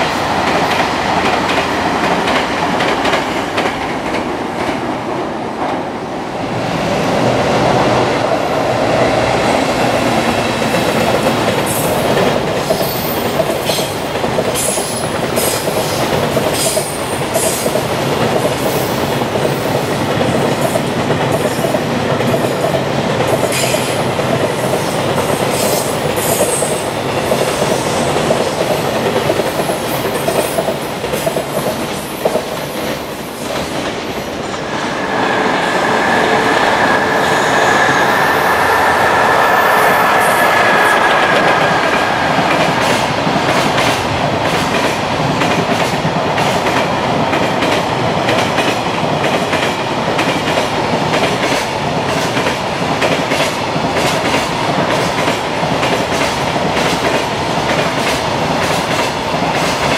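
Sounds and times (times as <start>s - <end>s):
freight train passing: 0.0s - 59.9s
locomotive high whine: 34.0s - 43.8s.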